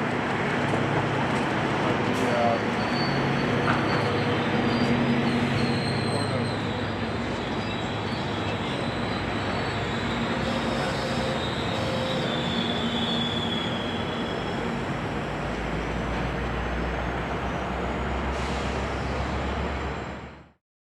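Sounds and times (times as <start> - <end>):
train rail and wheel noise: 0.0 - 20.6
faint high squeal: 2.5 - 14.8.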